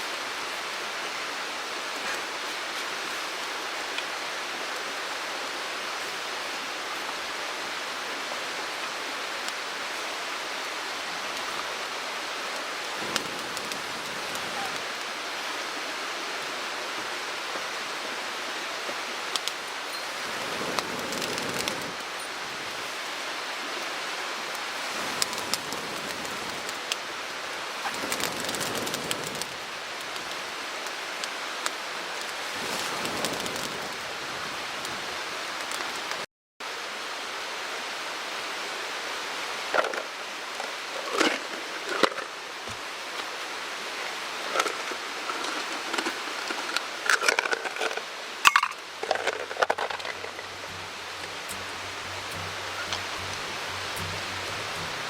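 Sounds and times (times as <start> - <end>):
mountain stream rushing: 0.0 - 55.0
bursts of noise: 50.0 - 55.0.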